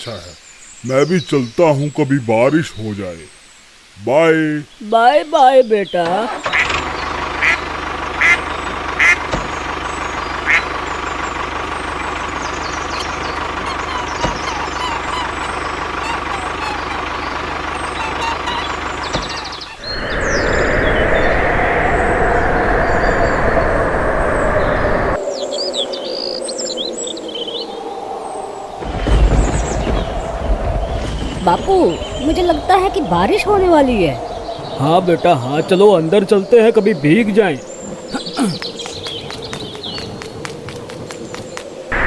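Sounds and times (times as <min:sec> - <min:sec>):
birds chirping: 0:00.0 - 0:42.0
loud rushing noise: 0:19.8 - 0:25.9, 0:27.0 - 0:36.2.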